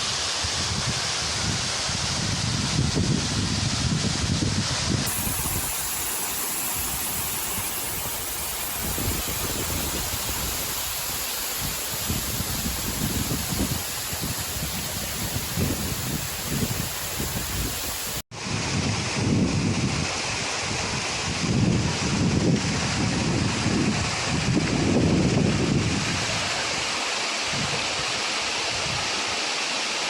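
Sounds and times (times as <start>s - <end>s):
wind buffeting microphone: 0.6s - 26.4s
waterfall rushing: 5.1s - 18.2s.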